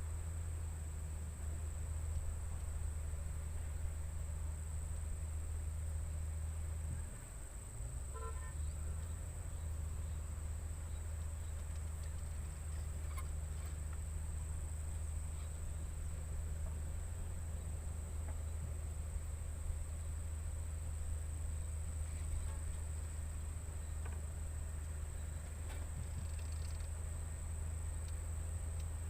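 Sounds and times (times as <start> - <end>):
crickets trilling: 7.0 - 29.0
short pitched toot: 8.1 - 8.7.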